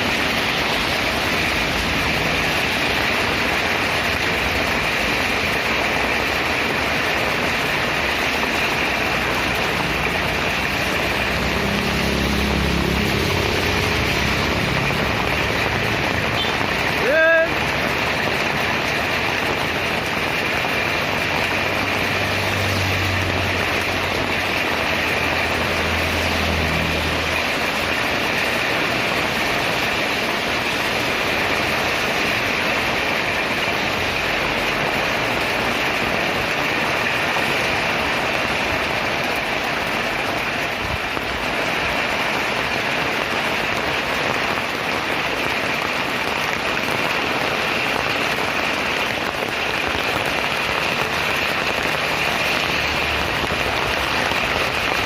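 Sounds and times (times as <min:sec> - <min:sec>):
vehicle engine hum: 0:00.0 - 0:36.3, 0:51.0 - 0:55.0
heavy rain falling: 0:00.0 - 0:55.0.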